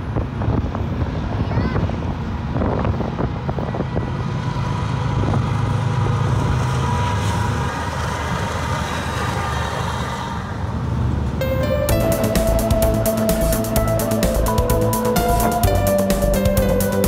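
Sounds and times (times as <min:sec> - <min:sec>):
diesel locomotives rumbling: 0:00.0 - 0:17.0
freight cars rolling on rails: 0:00.0 - 0:17.0
music: 0:11.4 - 0:17.0.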